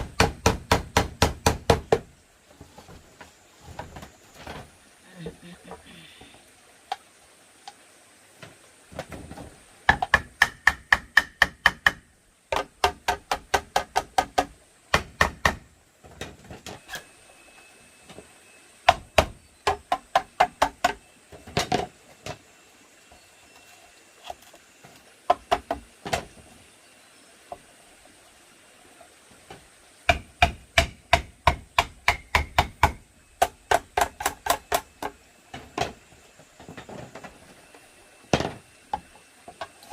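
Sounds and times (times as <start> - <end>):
hammer blows on bamboo: 0.0 - 2.1, 9.9 - 15.7, 30.1 - 35.2.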